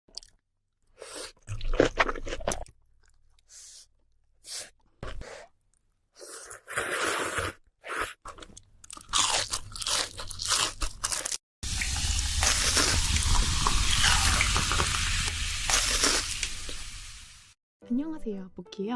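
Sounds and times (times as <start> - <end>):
crunchy food chewing: 1.4 - 3.5, 6.3 - 11.4.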